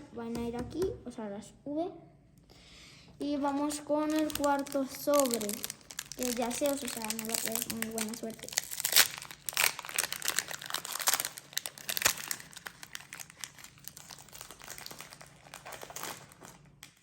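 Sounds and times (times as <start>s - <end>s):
foil wrapper crinkling: 3.4s - 17.0s.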